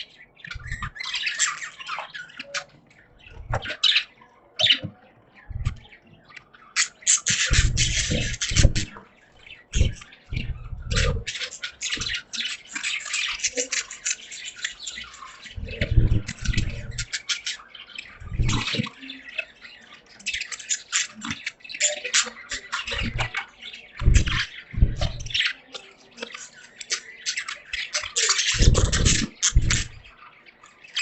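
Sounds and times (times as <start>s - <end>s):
budgies chattering: 0.0s - 31.0s
low thumps: 0.5s - 0.9s, 3.3s - 3.8s, 5.5s - 5.9s, 7.5s - 9.0s, 9.7s - 11.3s, 15.6s - 17.0s, 18.2s - 18.8s, 22.9s - 23.4s, 24.0s - 25.4s, 28.6s - 30.1s.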